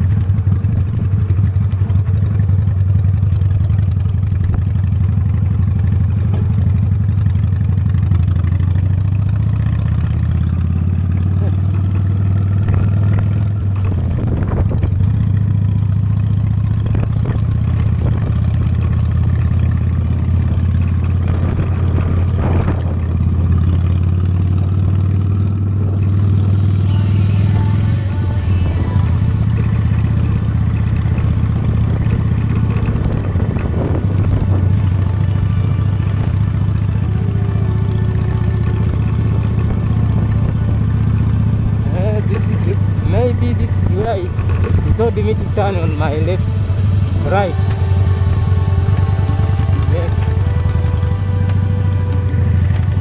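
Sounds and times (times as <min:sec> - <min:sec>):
motorcycle engine running: 0:00.0 - 0:53.0
hiss: 0:26.2 - 0:52.9.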